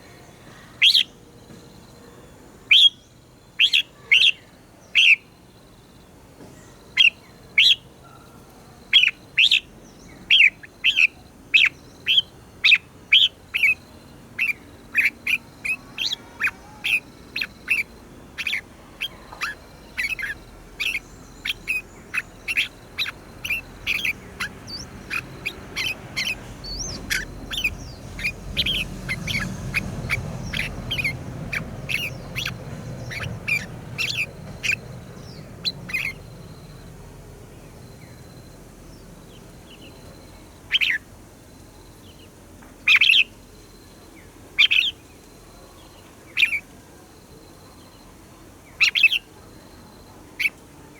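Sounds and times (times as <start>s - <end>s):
bird chirping: 0.5s - 1.7s, 2.7s - 5.3s, 6.6s - 36.9s, 37.6s - 41.0s, 44.6s - 46.6s.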